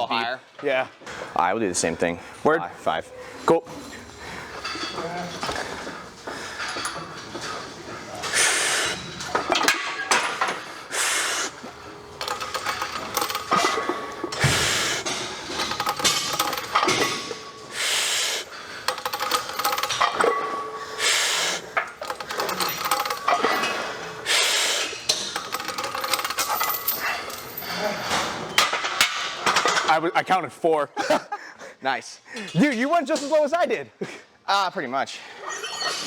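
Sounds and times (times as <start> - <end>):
barbell chains clinking: 4.5 - 5.8, 11.7 - 28.5, 35.5 - 36.0.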